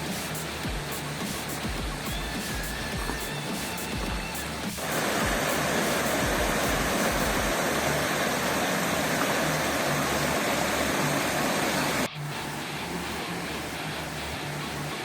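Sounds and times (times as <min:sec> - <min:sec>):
waterfall rushing: 0:02.0 - 0:12.1.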